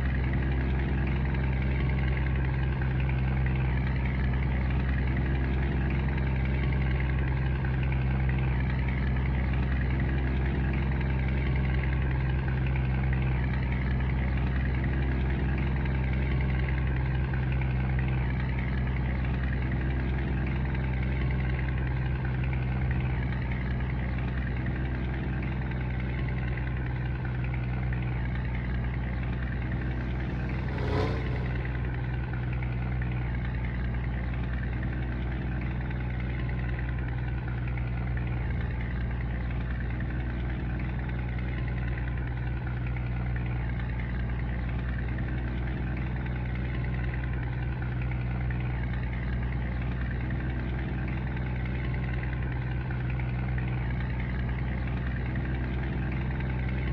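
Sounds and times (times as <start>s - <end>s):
diesel truck engine droning: 0.0s - 56.9s
brief sharp sound: 29.6s - 32.3s.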